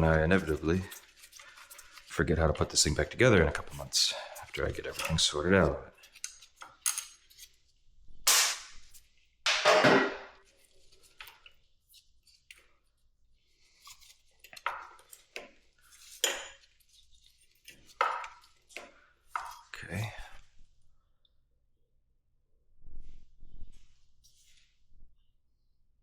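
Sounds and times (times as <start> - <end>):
metal hand tools clinking: 4.4 - 5.4.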